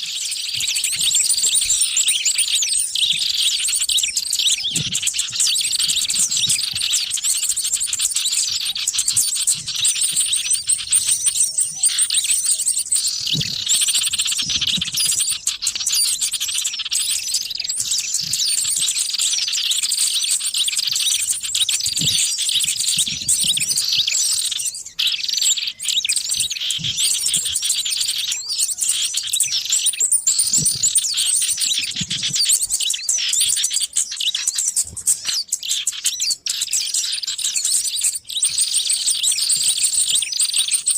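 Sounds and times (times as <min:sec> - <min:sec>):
flock of birds chirping: 0:00.0 - 0:40.9.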